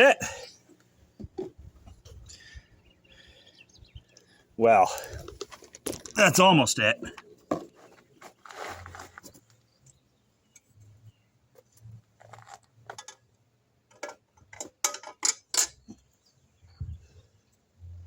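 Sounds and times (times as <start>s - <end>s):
small parts clicking and clinking: 4.9s - 6.4s.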